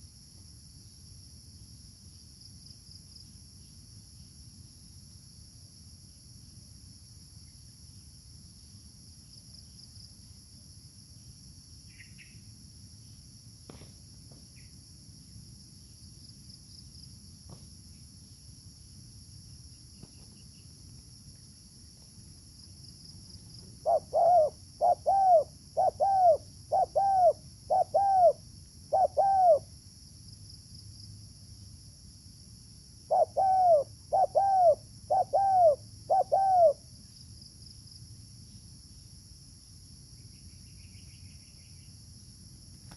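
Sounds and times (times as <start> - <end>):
insects droning: 0.0 - 42.9
dove cooing: 23.8 - 29.7, 33.1 - 36.8.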